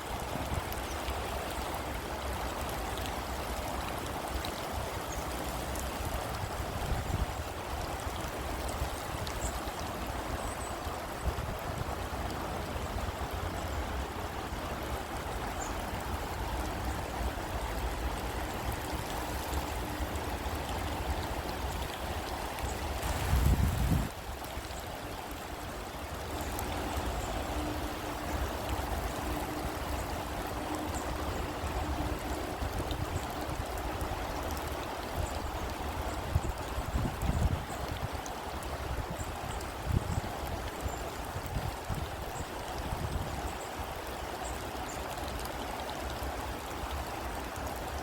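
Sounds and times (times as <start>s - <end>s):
heavy rain pouring: 10.0s - 24.8s.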